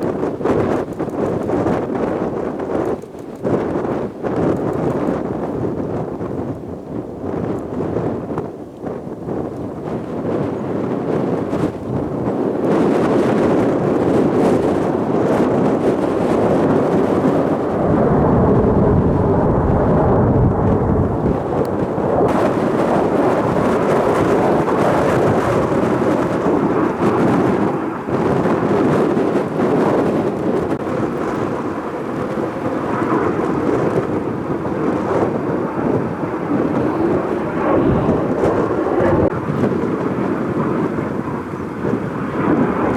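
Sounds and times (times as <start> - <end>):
jet roar: 0.0 - 42.9
wind buffeting microphone: 0.0 - 42.9.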